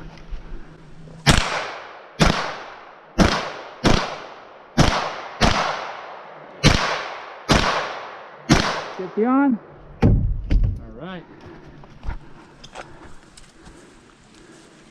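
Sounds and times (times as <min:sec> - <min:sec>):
gunshots: 0:01.2 - 0:09.2.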